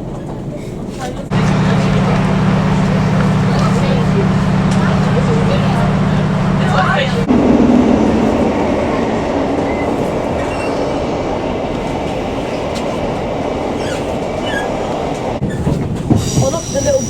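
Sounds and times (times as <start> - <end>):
train engine noise: 0.0 - 17.0
train wheels rumbling on rail: 0.0 - 17.0
faint hum: 1.3 - 9.8.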